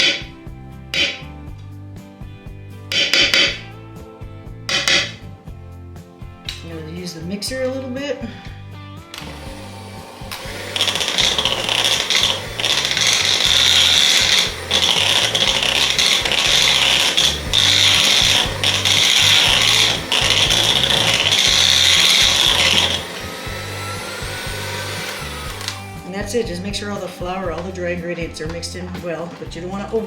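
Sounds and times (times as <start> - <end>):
electric kitchen mixer beating batter: 9.2 - 26.0.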